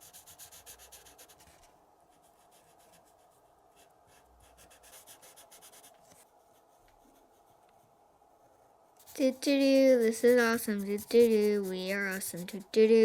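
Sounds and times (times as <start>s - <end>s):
paintbrush scratching on paper: 0.0s - 7.9s, 9.0s - 13.0s.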